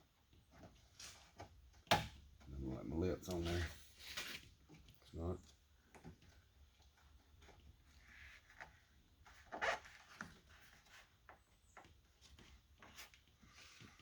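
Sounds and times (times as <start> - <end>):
rubber weatherstrip rubbing and clicking: 5.9 - 14.0.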